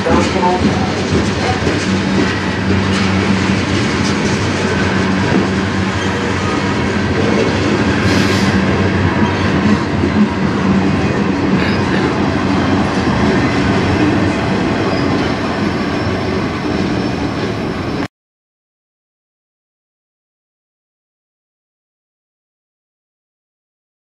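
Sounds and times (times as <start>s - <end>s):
train wheels clattering on rails: 0.0s - 18.1s.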